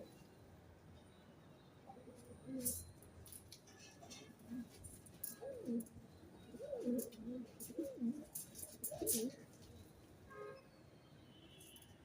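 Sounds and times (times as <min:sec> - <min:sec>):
pigeons cooing: 0:05.4 - 0:05.9, 0:06.5 - 0:09.4.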